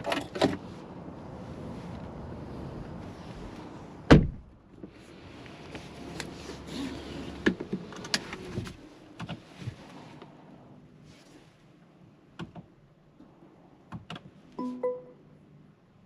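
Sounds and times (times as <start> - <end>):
car door shutting: 4.1 - 4.5.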